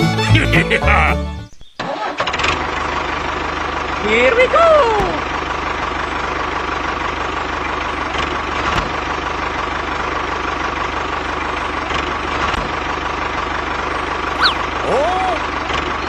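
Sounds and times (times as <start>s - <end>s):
small motor humming: 14.3s - 15.3s.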